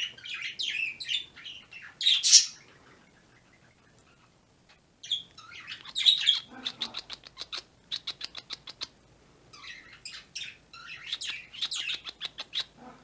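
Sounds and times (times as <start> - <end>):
bird squawking: 0.0 - 4.4
pet birds chattering and chirping: 0.0 - 13.0.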